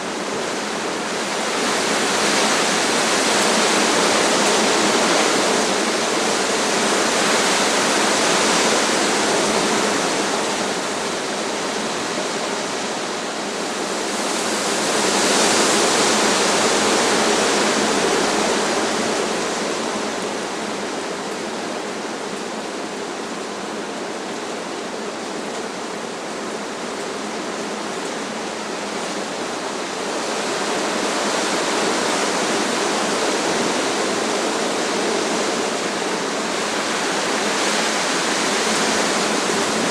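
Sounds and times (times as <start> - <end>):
strong wind through trees: 0.0 - 39.9.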